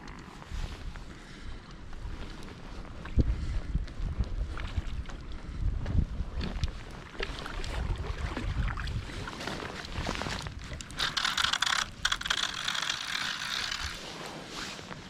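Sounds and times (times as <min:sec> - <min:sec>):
low wind noise: 0:00.0 - 0:07.0, 0:07.7 - 0:14.6
fishing reel clicking: 0:10.8 - 0:14.1.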